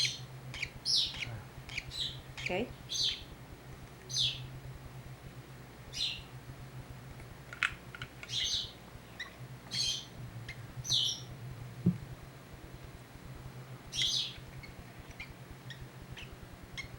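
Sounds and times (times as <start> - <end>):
baby bird begging calls: 0.0 - 3.3, 4.1 - 4.5, 5.9 - 6.3, 8.3 - 11.3, 13.9 - 16.9
steady low hum: 0.0 - 16.9.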